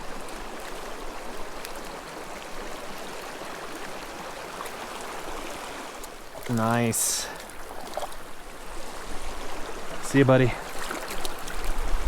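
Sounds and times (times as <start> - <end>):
creek babbling over rocks: 0.0 - 12.0.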